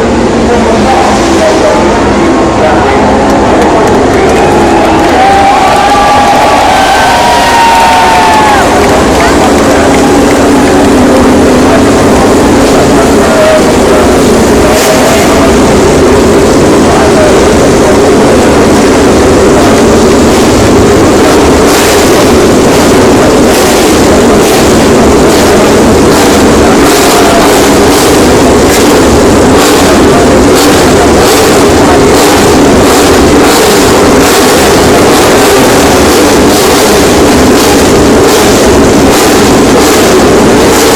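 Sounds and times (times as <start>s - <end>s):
racing motorcycle engines: 0.0s - 40.9s.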